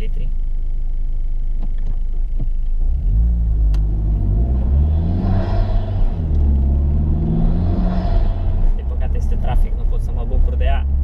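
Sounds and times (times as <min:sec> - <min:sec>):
car engine accelerating: 0:02.6 - 0:11.0.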